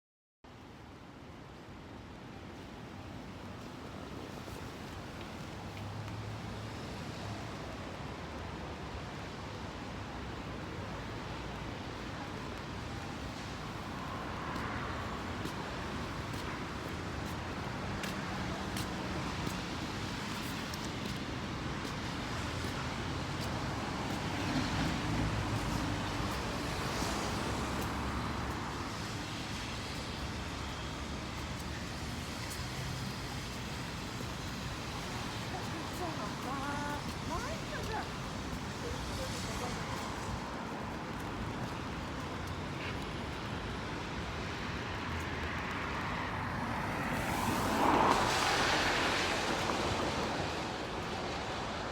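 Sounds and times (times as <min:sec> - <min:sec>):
rain: 0:00.6 - 0:51.9
road traffic: 0:01.9 - 0:51.9
strong wind: 0:08.7 - 0:51.9.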